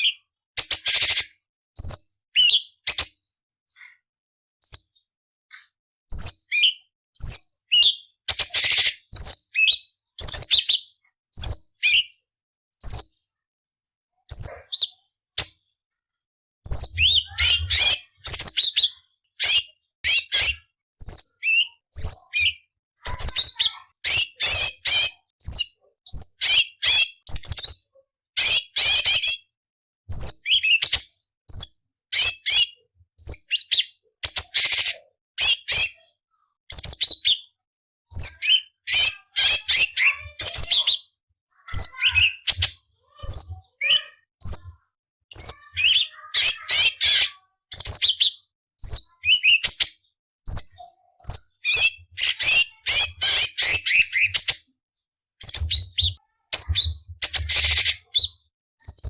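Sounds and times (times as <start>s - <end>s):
bird singing whistles and rasps: 1.8s - 3.0s, 6.1s - 12.2s, 16.7s - 22.7s, 30.1s - 36.0s, 36.7s - 41.1s, 41.8s - 44.7s, 45.3s - 54.6s, 55.4s - 59.0s.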